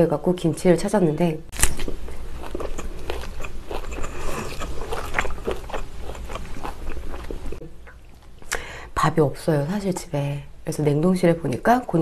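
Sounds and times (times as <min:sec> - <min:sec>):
biting and chewing meat: 0:01.5 - 0:08.4.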